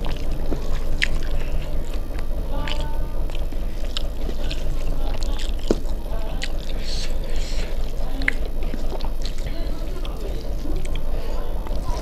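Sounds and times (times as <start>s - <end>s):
mouth smacks and clicks: 0.0s - 12.0s
steady low hum: 0.0s - 12.0s
wet chewing: 0.0s - 12.0s.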